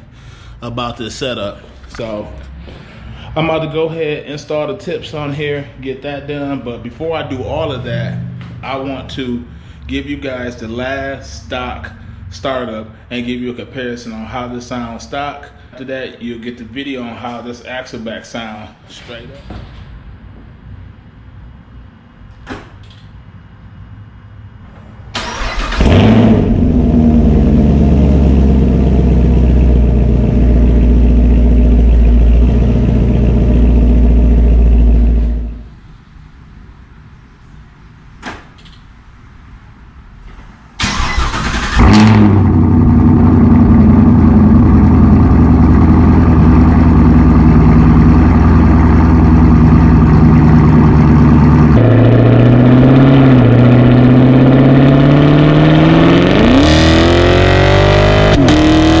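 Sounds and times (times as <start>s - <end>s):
car engine starting and idling: 25.0s - 35.8s, 40.7s - 59.0s.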